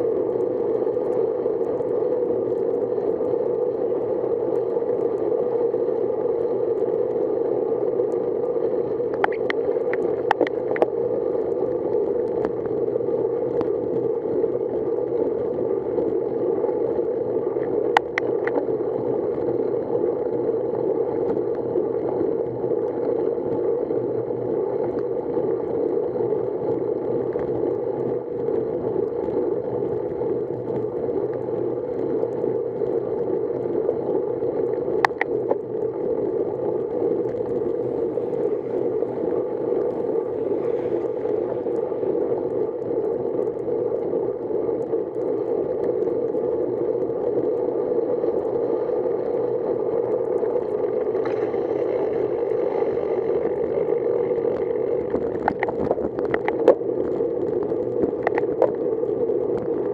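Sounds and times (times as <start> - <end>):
wind on microphone: 6.8 - 20.0, 26.5 - 59.9
bicycle tyres on wet road: 36.6 - 44.8, 49.1 - 59.9.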